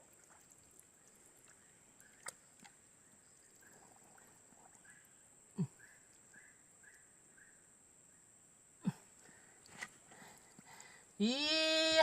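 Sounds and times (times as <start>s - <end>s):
faint chirps: 0.9s - 9.5s.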